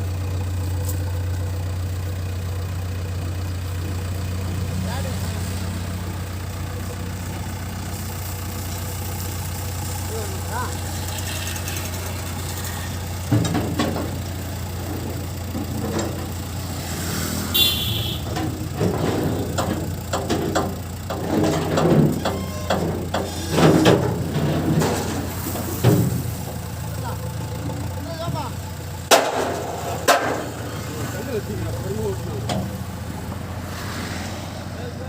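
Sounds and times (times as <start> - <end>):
diesel engine running: 0.0 - 35.0
irregular knocks and clanks: 13.2 - 16.4, 18.2 - 26.8, 29.0 - 30.6.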